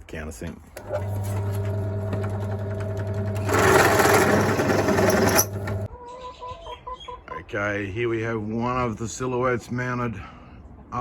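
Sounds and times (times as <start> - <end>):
electric drill cutting sheet steel: 0.9 - 5.9.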